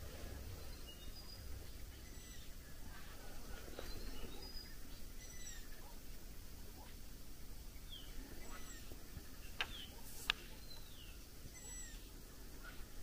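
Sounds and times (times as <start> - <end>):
higher ringing bird calls: 0.3 - 6.1, 7.6 - 12.8
down-slurred bird whistles: 11.5 - 12.0.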